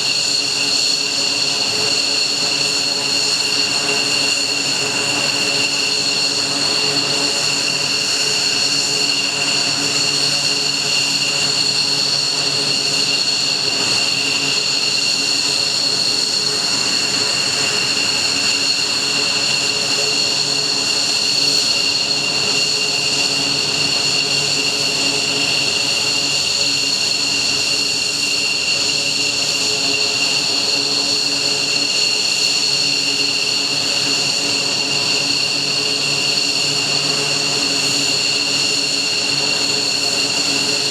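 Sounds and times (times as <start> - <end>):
jet engines running with high whine: 0.0 - 40.9.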